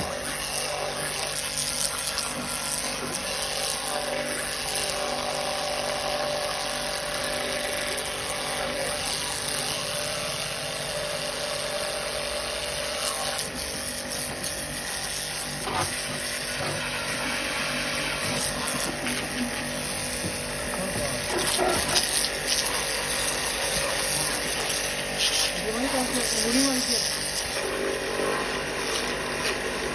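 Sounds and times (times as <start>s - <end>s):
pressure washer spraying: 0.0s - 5.0s, 12.4s - 29.9s.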